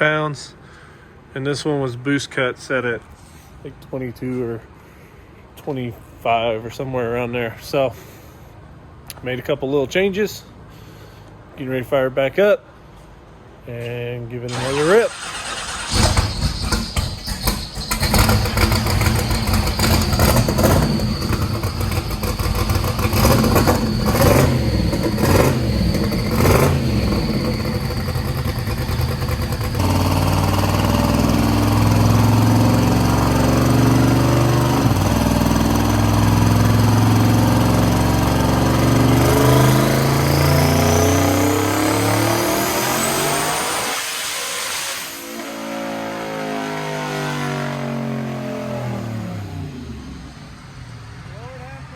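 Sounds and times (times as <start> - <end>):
car engine revving on dyno: 14.5 - 51.0
high rising whine: 15.9 - 34.2, 34.8 - 51.9.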